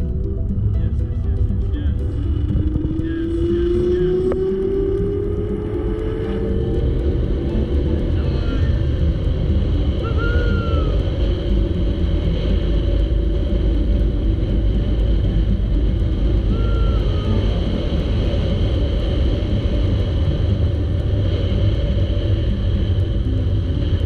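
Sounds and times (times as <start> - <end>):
whistle-like calls: 10.0 - 11.0, 16.5 - 17.5.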